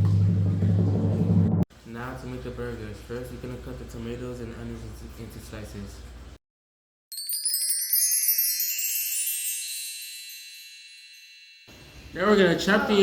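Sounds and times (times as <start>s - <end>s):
high shimmering chimes: 7.1s - 12.3s.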